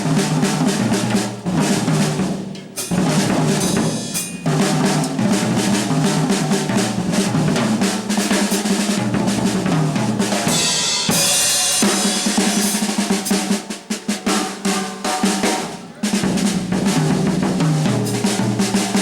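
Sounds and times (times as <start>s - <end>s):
jazz drum kit: 0.0s - 19.0s
cymbal wash: 3.6s - 4.9s.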